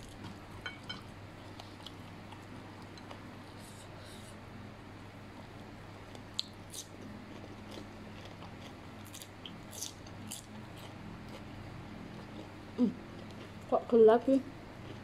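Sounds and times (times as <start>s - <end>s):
cucumber crunching while chewed: 6.0s - 13.7s.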